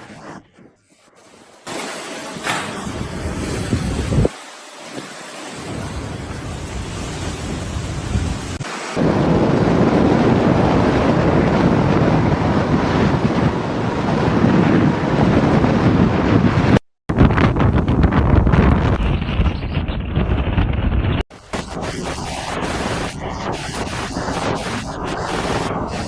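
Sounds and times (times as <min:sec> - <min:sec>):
wind: 0:00.0 - 0:26.0
heavy rain rushing: 0:03.9 - 0:09.1.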